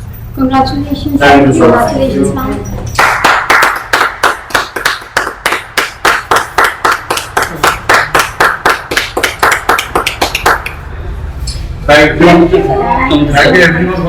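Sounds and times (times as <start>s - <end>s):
hands clapping: 2.9s - 10.8s.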